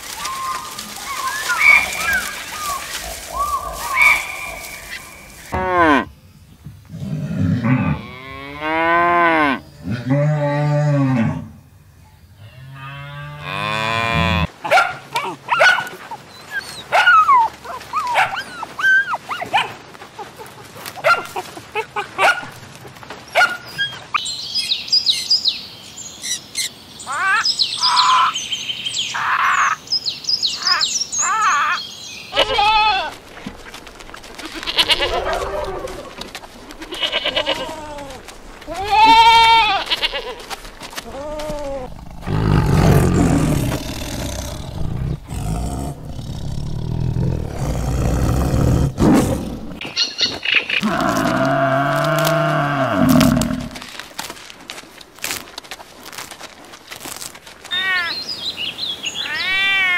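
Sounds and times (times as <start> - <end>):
dogs barking and yipping: 0.0 - 5.6, 14.6 - 24.2, 33.5 - 38.3.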